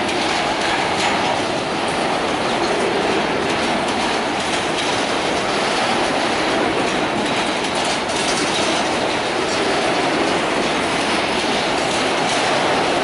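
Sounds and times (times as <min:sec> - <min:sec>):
steel wheels rolling on rails: 0:00.0 - 0:13.0.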